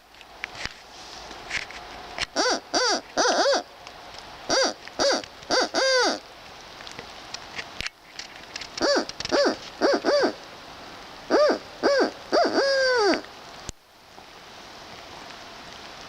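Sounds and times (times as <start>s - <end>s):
owl-like hooting: 2.3s - 3.7s, 4.5s - 6.2s, 8.8s - 10.4s, 11.3s - 13.3s.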